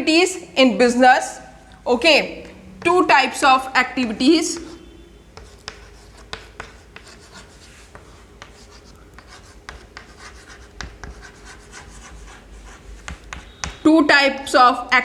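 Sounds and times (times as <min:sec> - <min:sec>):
pen scratching while writing: 0:04.0 - 0:13.8.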